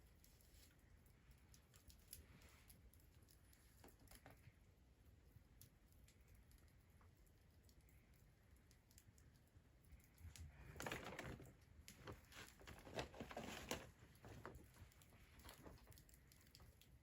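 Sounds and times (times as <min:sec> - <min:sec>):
fire kindling crackling: 0:00.0 - 0:17.0.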